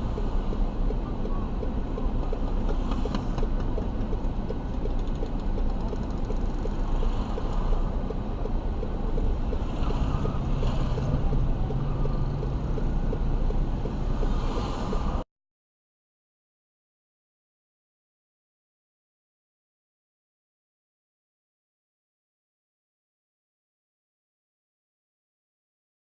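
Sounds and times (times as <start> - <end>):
car engine and road noise: 0.0 - 15.3.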